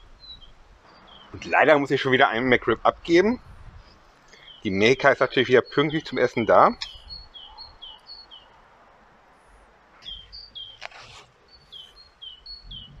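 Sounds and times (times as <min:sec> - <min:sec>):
rustling: 0:09.4 - 0:12.0.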